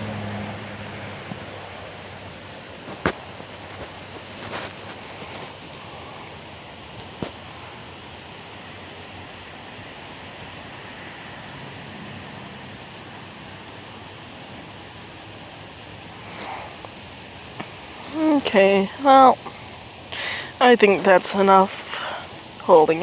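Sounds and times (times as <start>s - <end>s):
steady outdoor hiss: 0.0s - 23.0s.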